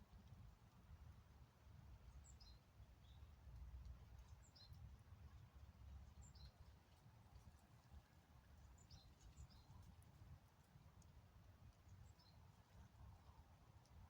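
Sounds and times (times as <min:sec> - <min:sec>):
faint songbird chirps: 0:02.1 - 0:03.4, 0:04.2 - 0:04.8, 0:06.1 - 0:06.7, 0:08.6 - 0:09.9, 0:11.8 - 0:12.5.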